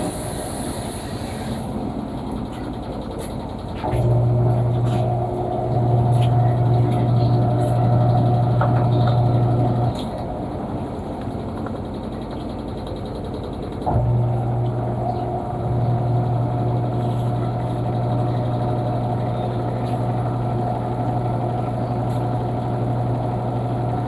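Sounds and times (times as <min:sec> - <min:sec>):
washing machine motor humming: 0:00.0 - 0:24.0.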